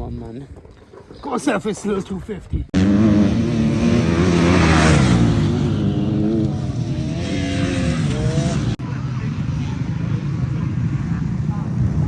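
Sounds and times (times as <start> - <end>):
motocross bike engines revving: 2.7 - 12.0.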